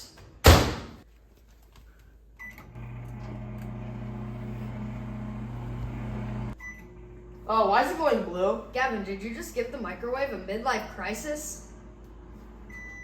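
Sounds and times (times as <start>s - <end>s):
microwave oven humming: 2.5s - 8.4s, 11.6s - 13.0s.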